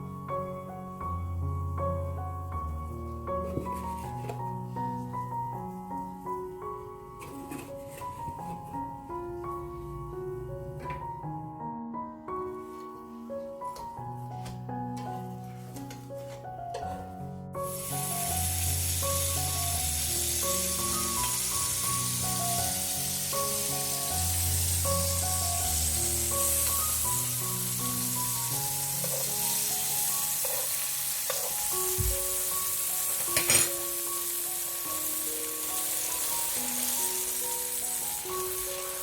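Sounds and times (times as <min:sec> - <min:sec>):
background music: 0:00.0 - 0:39.0
food sizzling in a frying pan: 0:17.6 - 0:39.0.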